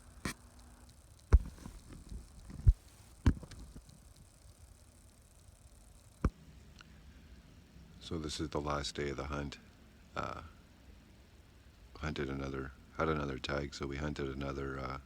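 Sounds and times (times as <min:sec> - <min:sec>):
dull thumps and knocks: 0:01.4 - 0:03.6.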